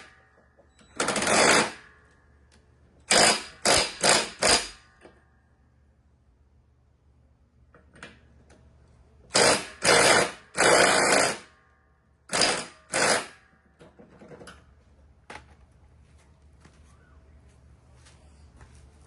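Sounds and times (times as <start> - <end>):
power tool bursts: 1.0 - 1.8, 3.1 - 4.8, 9.3 - 11.5, 12.3 - 13.4.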